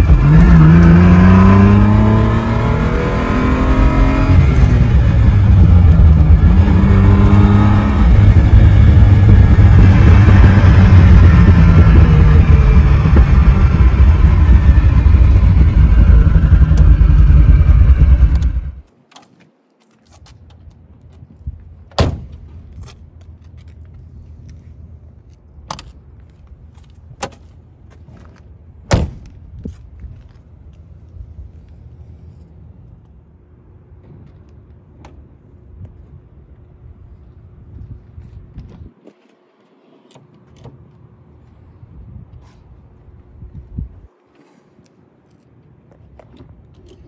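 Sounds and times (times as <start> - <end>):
car engine running from cabin: 0.0 - 18.8.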